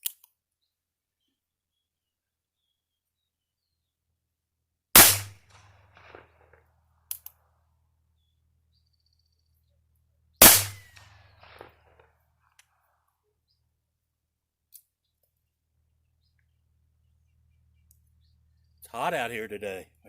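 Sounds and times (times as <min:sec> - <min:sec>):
small clicks: 0:00.0 - 0:00.4, 0:05.5 - 0:07.4
pistol shots with echo: 0:05.0 - 0:06.5, 0:10.4 - 0:12.0.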